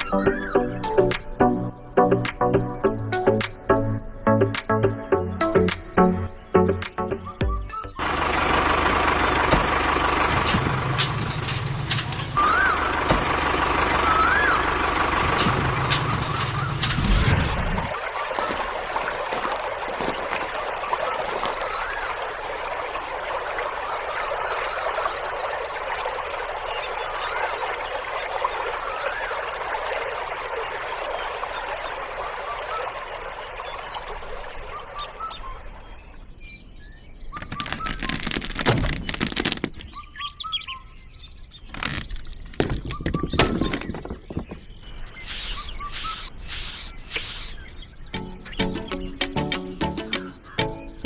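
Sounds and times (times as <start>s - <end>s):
birds chirping: 35.2s - 51.0s
sharp clattering knocks: 41.7s - 44.9s.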